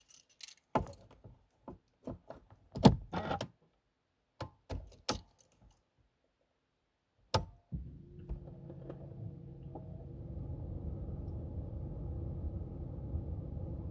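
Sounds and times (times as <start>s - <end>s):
car keys jangling: 0.0s - 1.0s.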